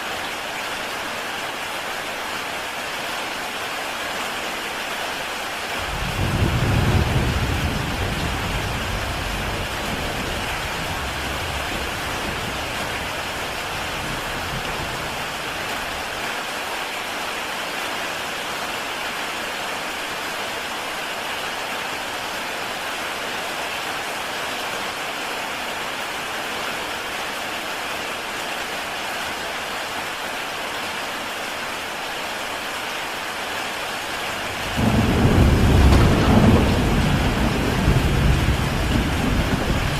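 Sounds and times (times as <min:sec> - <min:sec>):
heavy rain on a tile roof: 0:00.0 - 0:39.9
thunder rumble: 0:05.8 - 0:16.1, 0:34.4 - 0:39.9.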